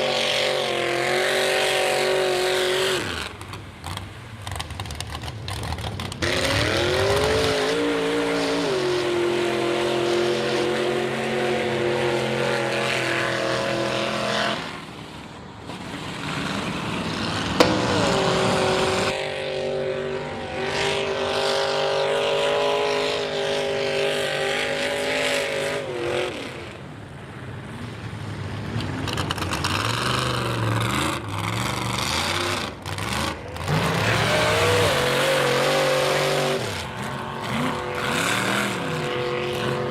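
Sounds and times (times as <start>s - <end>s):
truck engine revving hard: 0.0s - 4.0s, 5.7s - 15.0s, 15.7s - 26.8s, 28.9s - 39.9s.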